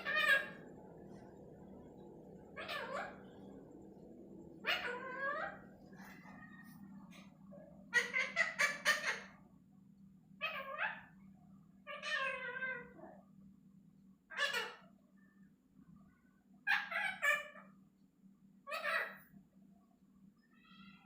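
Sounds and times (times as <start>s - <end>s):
parrot calling: 0.0s - 9.5s, 10.4s - 11.2s, 11.8s - 13.2s, 14.3s - 15.0s, 16.6s - 17.8s, 18.7s - 19.3s.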